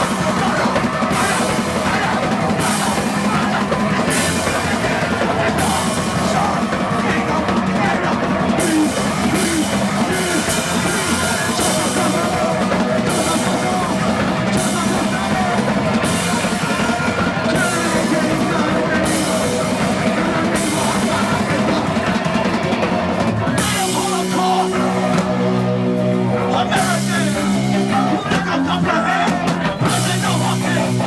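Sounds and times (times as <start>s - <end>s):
live rock band: 0.0s - 31.0s.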